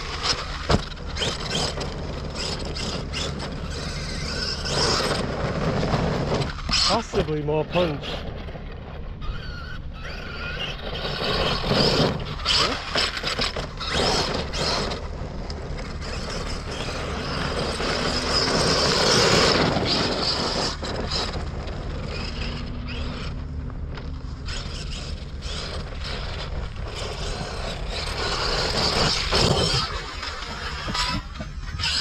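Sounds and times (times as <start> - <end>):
electric motor whine: 9.2 - 32.0
tyres crunching on rough ground: 10.4 - 32.0.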